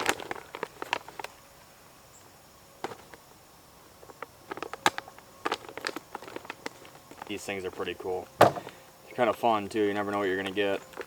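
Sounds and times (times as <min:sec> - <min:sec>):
plastic pouch crinkling: 0:00.0 - 0:01.4, 0:04.0 - 0:08.8.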